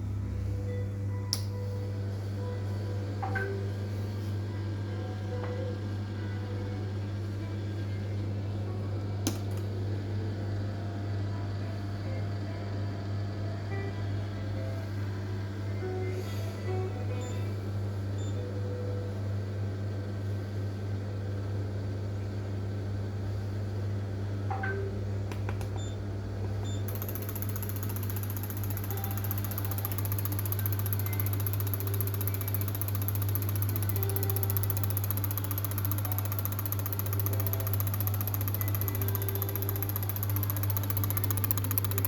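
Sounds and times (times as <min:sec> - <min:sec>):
clicks: 0:26.9 - 0:42.0.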